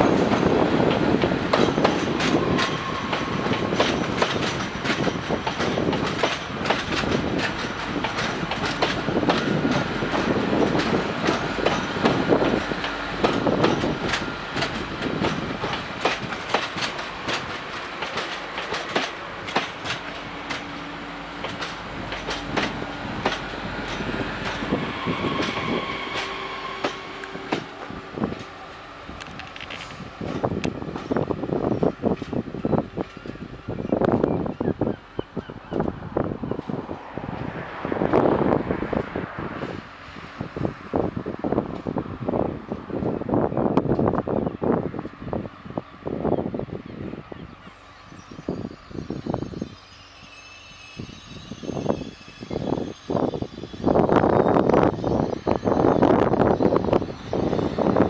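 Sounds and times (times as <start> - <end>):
train wheels clicking over rail joints: 0.0 - 34.7
train rumble: 0.0 - 58.0
thin high squeal: 47.6 - 58.0.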